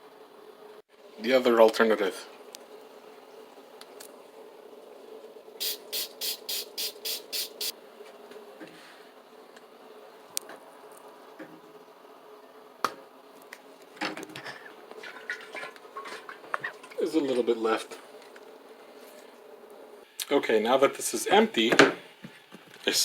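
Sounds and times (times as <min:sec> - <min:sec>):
faint steady hum: 0:00.0 - 0:23.0
quick hisses of air: 0:05.6 - 0:07.7.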